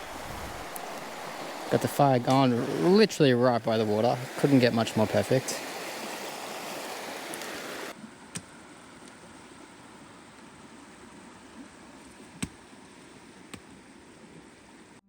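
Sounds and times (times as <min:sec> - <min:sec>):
campfire popping: 0:00.0 - 0:09.5
stream rushing: 0:00.0 - 0:11.9.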